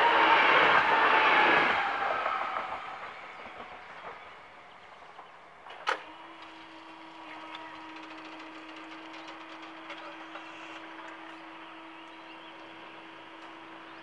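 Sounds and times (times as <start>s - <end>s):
electric train running: 0.0s - 14.0s
barrier motor humming: 5.6s - 14.0s.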